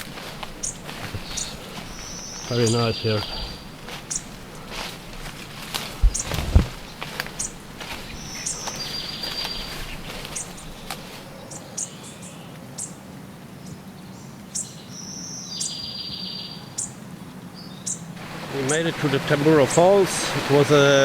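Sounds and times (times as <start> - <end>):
bird trill: 0.0 - 4.9, 6.0 - 13.0, 13.6 - 17.0
high bird chirps: 0.6 - 4.7, 6.0 - 11.0
low thump: 6.0 - 6.8.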